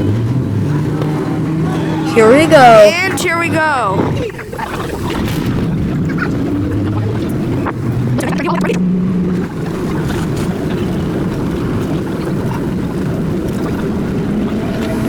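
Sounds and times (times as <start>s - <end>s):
subway car wheels rumbling: 9.2s - 15.0s.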